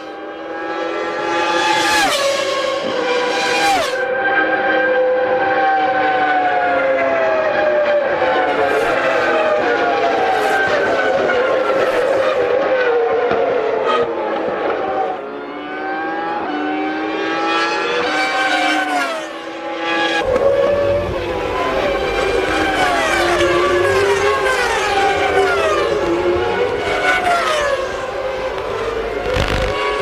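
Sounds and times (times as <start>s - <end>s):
race car engines revving past: 0.0s - 30.0s
deep rumble: 20.2s - 24.4s.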